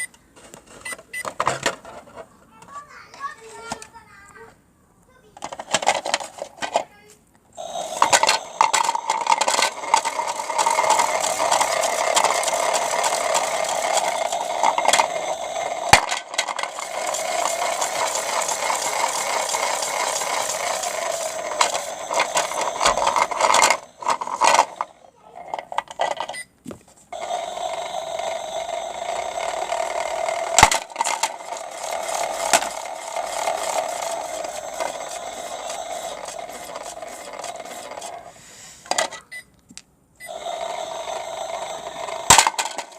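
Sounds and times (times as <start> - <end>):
small motor whine: 7.6 - 25.0, 27.1 - 38.3, 40.3 - 42.9.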